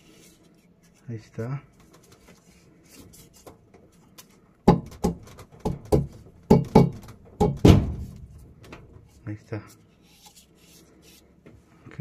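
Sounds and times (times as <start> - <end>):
hard knocks on metal rotor: 4.7 - 8.2.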